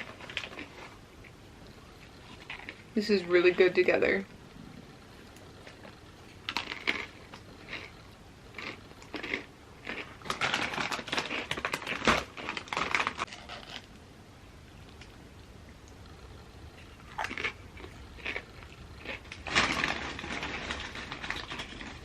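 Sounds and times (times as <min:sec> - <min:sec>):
chips bag crinkling: 0:00.0 - 0:01.0, 0:06.5 - 0:13.9, 0:17.1 - 0:22.0.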